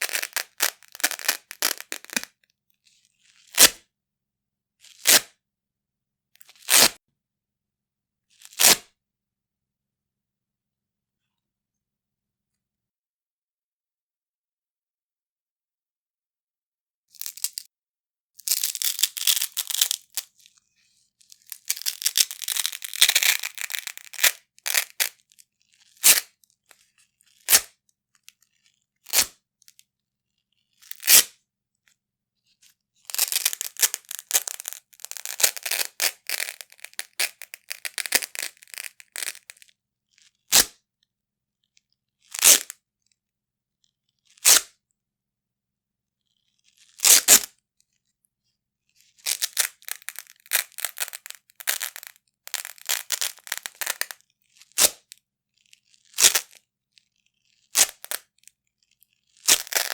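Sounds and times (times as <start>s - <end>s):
velcro ripping apart: 0.0s - 2.3s, 3.5s - 3.8s, 5.0s - 5.3s, 6.6s - 7.0s, 8.4s - 8.8s, 18.5s - 20.3s, 21.3s - 25.2s, 25.8s - 26.3s, 27.3s - 27.7s, 29.1s - 29.3s, 30.8s - 31.3s, 33.1s - 39.6s, 40.5s - 40.7s, 42.4s - 42.7s, 44.4s - 44.7s, 46.7s - 47.5s, 49.2s - 55.0s, 55.8s - 56.6s, 57.4s - 59.9s.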